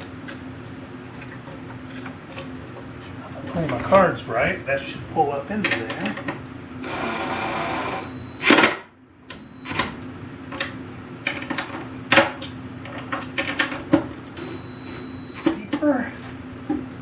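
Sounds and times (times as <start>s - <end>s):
cordless drill driving screw: 6.8s - 8.1s.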